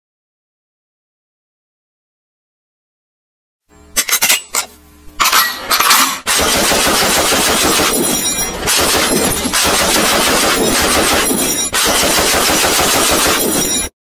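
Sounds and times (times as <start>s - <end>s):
toy rifle rapid gunfire: 6.2s - 13.9s.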